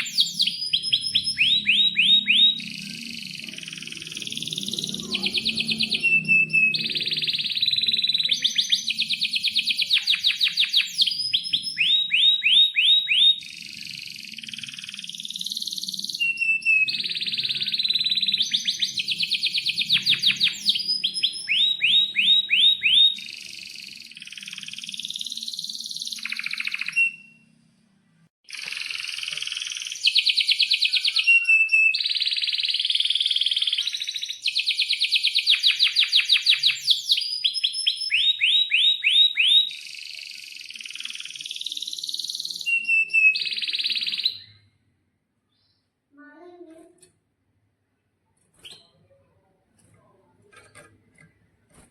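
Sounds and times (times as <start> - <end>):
canary singing trills: 0.0 - 27.5, 28.5 - 44.7.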